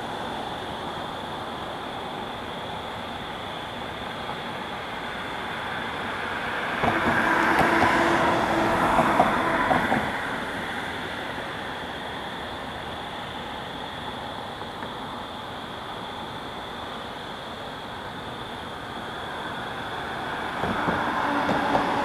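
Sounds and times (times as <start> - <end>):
passenger train passing: 0.0 - 22.0
train wheel clicks: 20.5 - 22.0.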